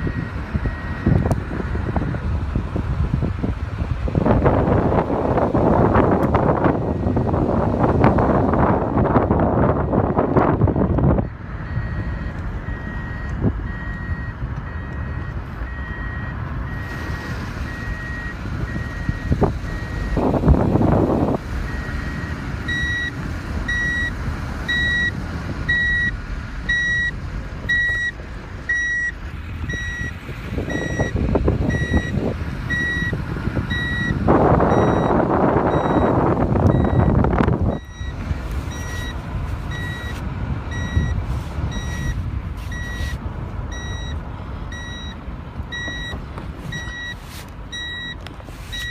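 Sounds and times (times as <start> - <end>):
low vehicle rumble: 0.0 - 48.9
wind noise on microphone: 0.0 - 48.9
electronic warning beeper: 21.7 - 24.1, 24.7 - 30.1, 30.7 - 48.9.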